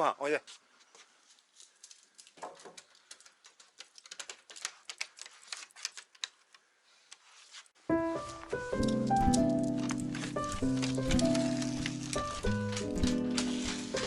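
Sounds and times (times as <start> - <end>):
music: 7.9 - 14.0
dog crunching kibble: 8.7 - 14.0.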